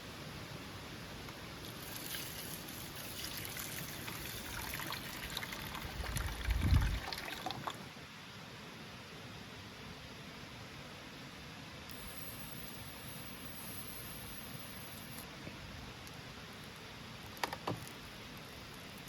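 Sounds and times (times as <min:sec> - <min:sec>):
liquid trickling: 0:01.6 - 0:07.9.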